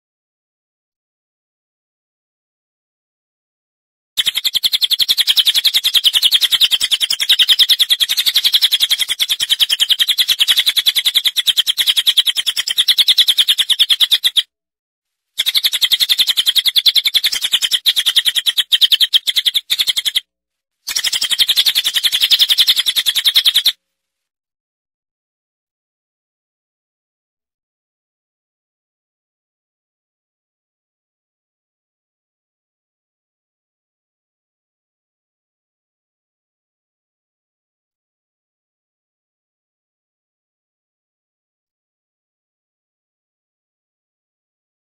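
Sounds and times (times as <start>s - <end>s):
songbird chirping trill: 4.2s - 14.5s, 15.4s - 20.3s, 20.9s - 23.8s.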